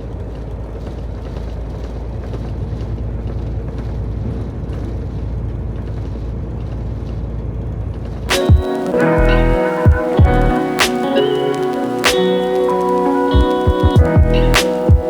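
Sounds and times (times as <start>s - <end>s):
road and tyre noise: 0.0s - 10.8s
diesel engine drone: 8.9s - 10.6s.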